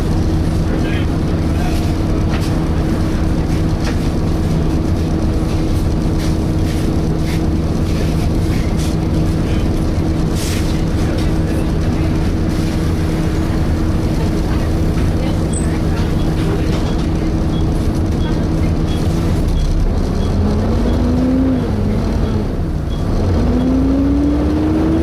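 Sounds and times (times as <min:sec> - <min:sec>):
bus engine drone: 0:00.0 - 0:25.0.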